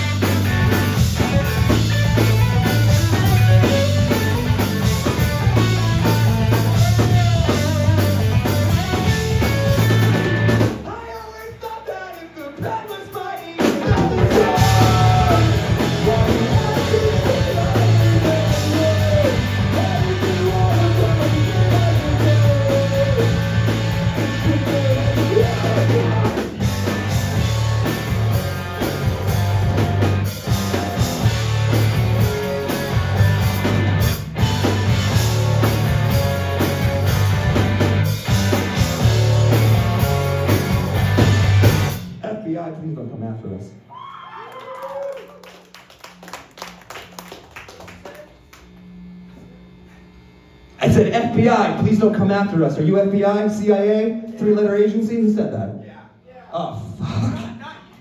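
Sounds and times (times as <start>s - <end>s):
live rock band playing: 0.0s - 10.9s, 13.6s - 42.2s
person singing: 10.9s - 26.4s.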